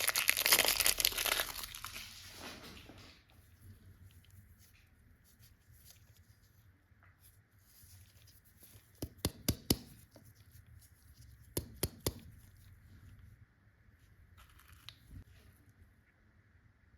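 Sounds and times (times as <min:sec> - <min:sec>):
packaging rustling: 0:00.0 - 0:02.9.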